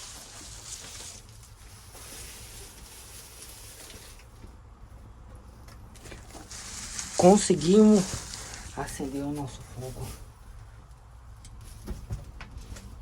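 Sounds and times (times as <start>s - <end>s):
tinder hissing as it catches: 6.4s - 8.9s.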